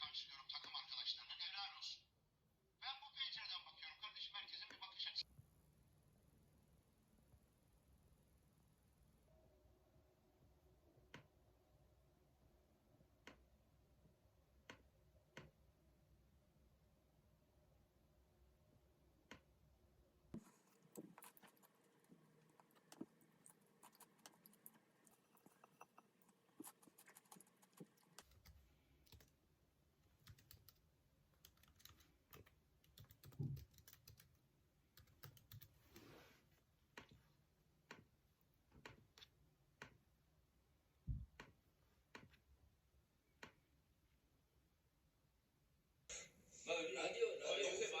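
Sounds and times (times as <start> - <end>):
typing on a computer keyboard: 26.6 - 29.4, 30.2 - 30.8, 31.4 - 35.8.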